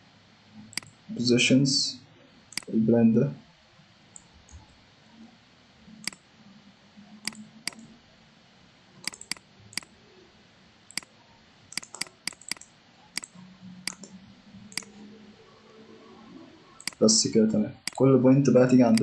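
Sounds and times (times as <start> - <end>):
computer mouse clicking: 0.7 - 1.0, 2.5 - 2.7, 4.1 - 4.8, 6.0 - 6.2, 7.2 - 7.9, 9.0 - 10.0, 10.9 - 15.0, 16.8 - 17.2, 17.8 - 18.0.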